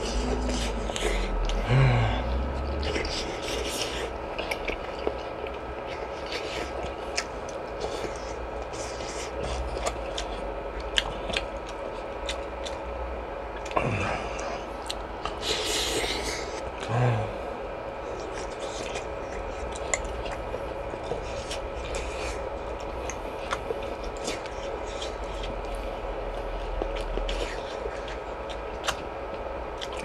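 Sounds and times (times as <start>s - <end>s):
chewing and mouth noises: 0.0s - 17.4s, 18.0s - 30.0s
person humming briefly: 1.6s - 2.6s, 16.8s - 17.5s.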